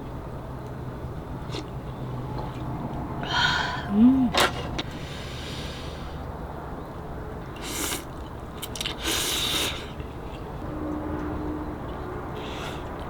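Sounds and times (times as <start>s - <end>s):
low background rumble: 0.0s - 9.0s.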